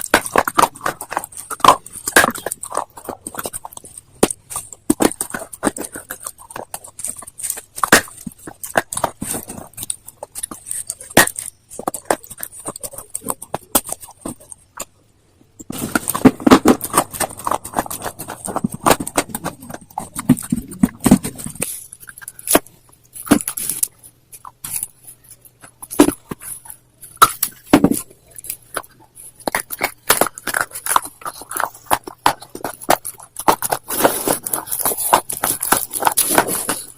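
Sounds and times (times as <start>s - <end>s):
stone being crunched and chewed: 0.0s - 36.9s.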